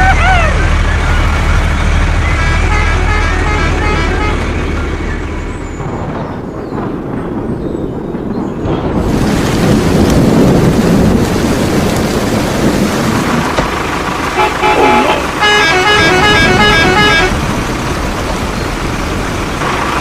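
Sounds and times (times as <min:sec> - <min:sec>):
vehicle engine running: 0:00.0 - 0:06.0, 0:11.5 - 0:20.0
horn tooting changing notes: 0:02.1 - 0:04.7, 0:14.3 - 0:17.5.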